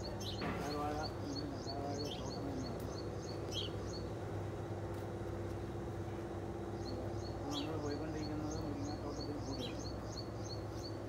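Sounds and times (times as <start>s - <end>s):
small bird chirping: 0.0s - 4.1s, 6.8s - 11.0s
steady low hum: 0.0s - 11.0s.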